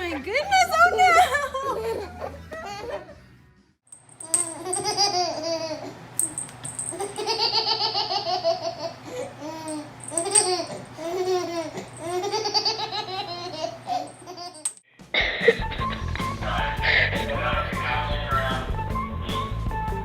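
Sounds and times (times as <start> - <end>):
baby laughing: 4.4 - 6.0, 6.9 - 14.7.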